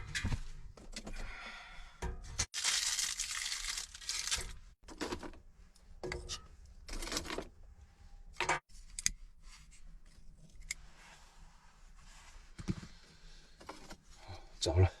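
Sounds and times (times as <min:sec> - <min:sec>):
crumpling and tearing: 0:02.5 - 0:04.7.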